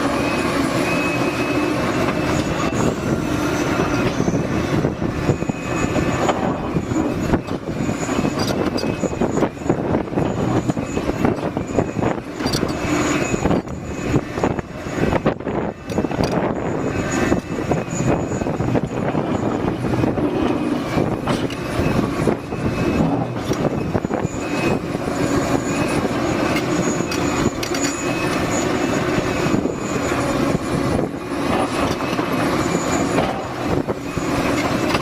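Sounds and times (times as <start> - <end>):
excavator diesel engine running: 0.0 - 35.0
knocks and clatter: 15.3 - 24.8, 31.4 - 35.0.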